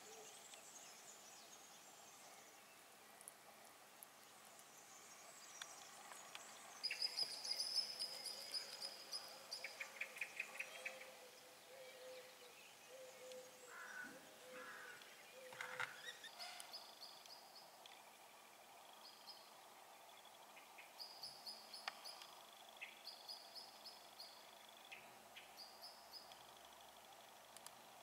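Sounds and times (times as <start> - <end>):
faint steady hum: 0.0 - 28.0
faint bird calls: 5.5 - 17.3.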